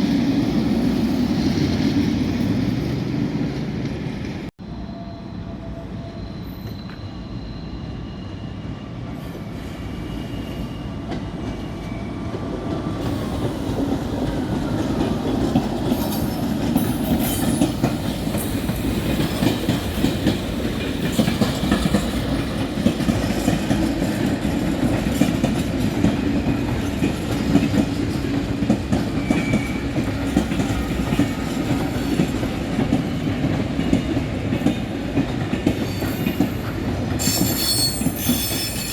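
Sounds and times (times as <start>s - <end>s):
train rumbling past: 0.0s - 38.9s
train wheels clacking over joints: 13.0s - 38.9s.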